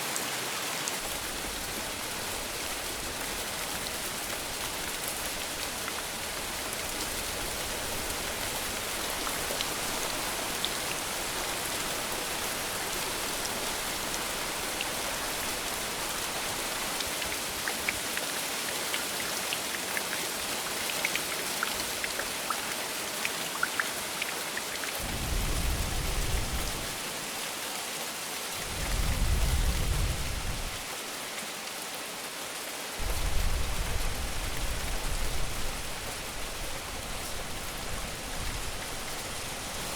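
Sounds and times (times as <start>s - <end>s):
rain hissing: 1.0s - 17.0s, 23.5s - 27.4s, 28.6s - 30.9s, 33.0s - 39.9s
raindrops ticking: 19.0s - 25.0s.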